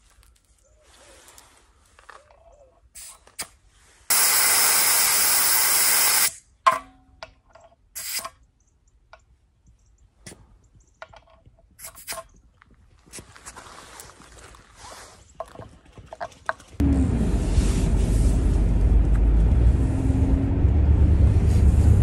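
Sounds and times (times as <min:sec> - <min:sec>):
compressed air hissing from valve: 0:04.1 - 0:06.4
small clicks and knocks: 0:09.1 - 0:12.6.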